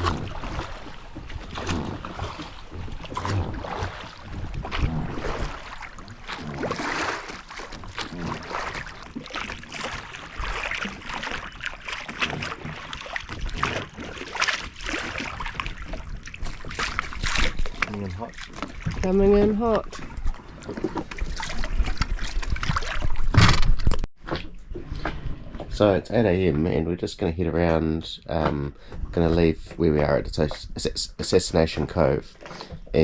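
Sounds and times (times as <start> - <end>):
wind buffeting microphone: 0.0 - 9.1
water splashing around boat: 0.0 - 33.0.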